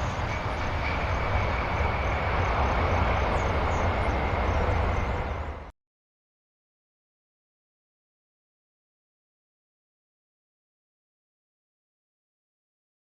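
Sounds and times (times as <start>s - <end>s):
airplane engine rumble: 0.0s - 5.7s.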